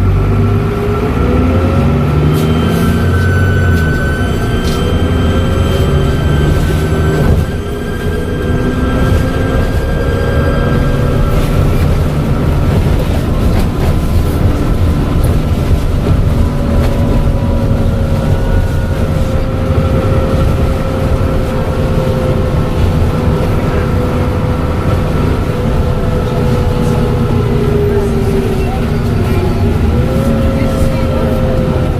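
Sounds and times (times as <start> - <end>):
bus engine rumbling: 0.0 - 31.9
turbo whistle: 2.3 - 10.8.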